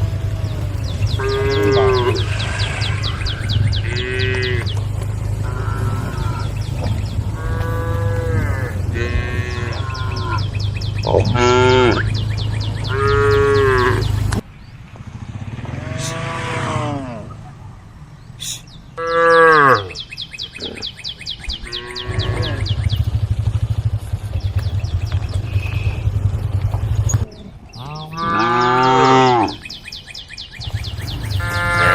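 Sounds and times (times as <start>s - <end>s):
cows mooing: 0.0s - 14.4s, 15.6s - 17.6s, 19.0s - 20.0s, 21.6s - 23.1s, 27.0s - 29.7s, 30.9s - 31.9s.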